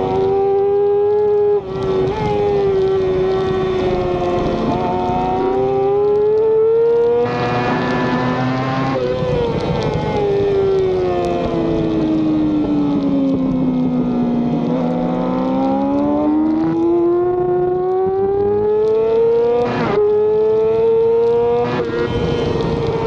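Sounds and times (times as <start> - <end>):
racing motorcycle engine accelerating: 0.0 - 23.0
wind noise: 0.0 - 23.0.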